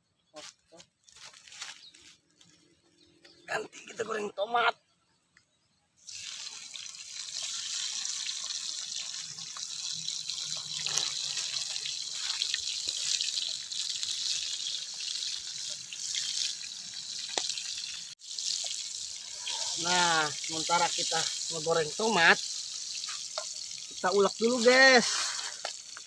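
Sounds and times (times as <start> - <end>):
tomatoes sizzling in hot oil: 6.0 - 26.0.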